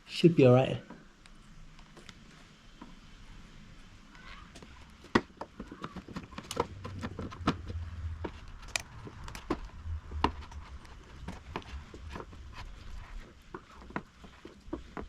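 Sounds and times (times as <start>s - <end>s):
low rumble: 6.6s - 13.4s.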